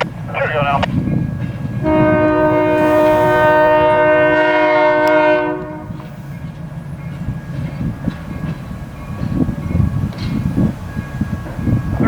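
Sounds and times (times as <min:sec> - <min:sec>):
locomotive air horn blast: 0:01.8 - 0:06.1.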